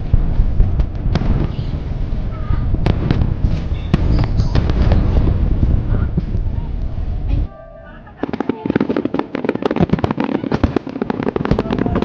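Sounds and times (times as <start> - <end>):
booming shells rumble: 0.0 - 7.5
fireworks cracks and bangs: 0.0 - 12.0.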